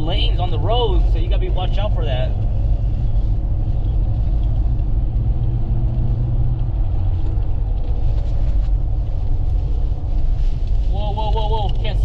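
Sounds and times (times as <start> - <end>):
wind against car body: 0.0 - 11.0
car engine and road noise: 0.0 - 12.0.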